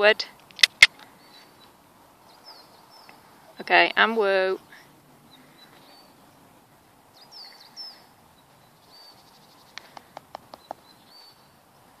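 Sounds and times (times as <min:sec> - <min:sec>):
sharp clicks: 0:00.4 - 0:01.0
small birds chirping and whistling: 0:01.0 - 0:04.0, 0:07.1 - 0:11.5.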